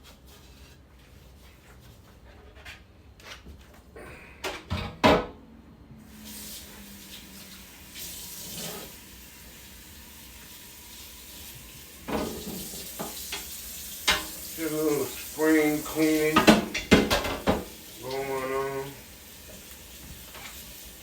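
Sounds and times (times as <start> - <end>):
tap water running into sink: 6.1 - 21.0.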